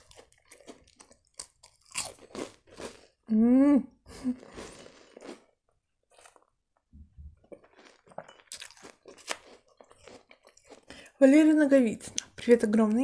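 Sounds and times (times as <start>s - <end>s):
chewing crunchy biscuit: 0.0s - 3.3s, 4.3s - 6.6s, 7.4s - 11.2s.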